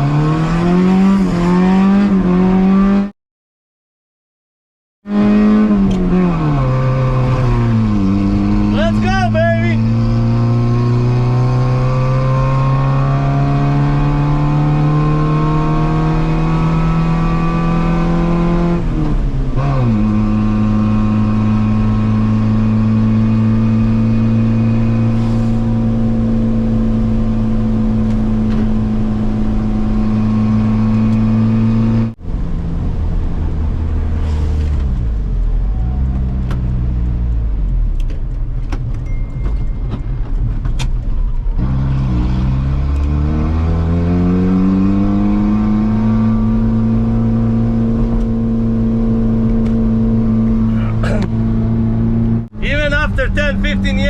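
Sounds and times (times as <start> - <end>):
car engine revving: 0.0 - 3.1, 5.1 - 38.1, 41.4 - 54.0.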